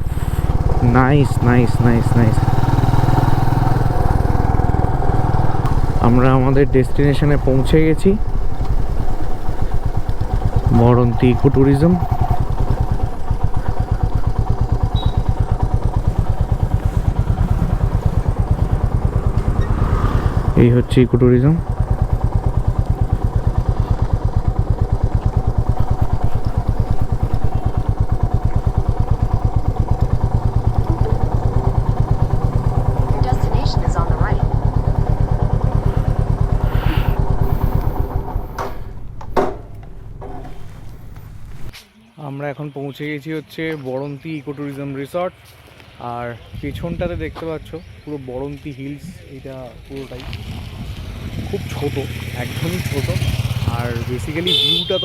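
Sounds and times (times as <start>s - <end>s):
motorcycle engine running: 0.0s - 41.8s, 49.8s - 55.0s
sharp knock: 38.6s - 40.4s.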